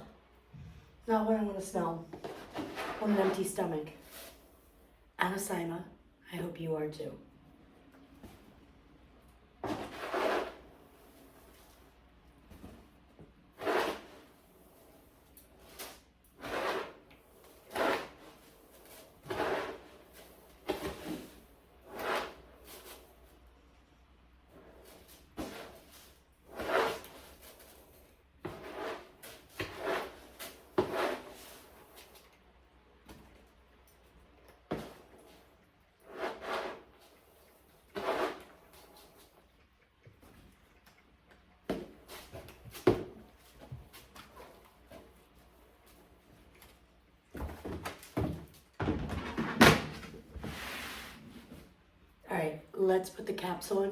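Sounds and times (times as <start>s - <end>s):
cat litter scraping: 9.6s - 10.7s, 13.5s - 14.3s, 15.6s - 23.0s, 25.3s - 27.8s, 28.4s - 32.2s, 36.0s - 39.3s.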